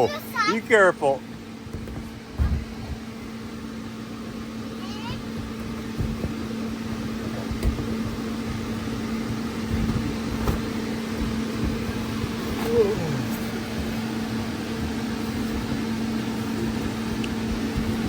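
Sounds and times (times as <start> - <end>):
blower fan humming: 0.0 - 18.0
children bouncing thumps: 4.8 - 14.0, 14.7 - 18.0.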